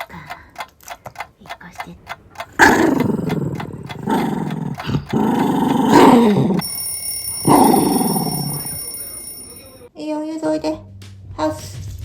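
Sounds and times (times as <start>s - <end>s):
dog grumbling: 2.4s - 6.6s, 7.4s - 8.7s.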